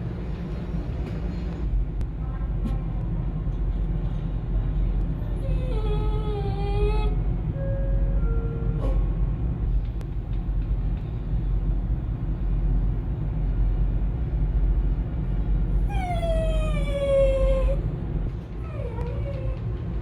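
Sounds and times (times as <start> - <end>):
ferry engines rumbling: 0.0 - 20.0
dog whining: 5.4 - 7.2, 15.8 - 17.8, 18.6 - 19.7.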